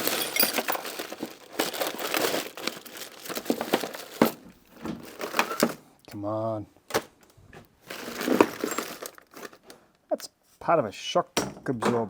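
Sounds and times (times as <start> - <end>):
hardware clinking and rattling: 0.0 - 5.8, 7.8 - 9.8.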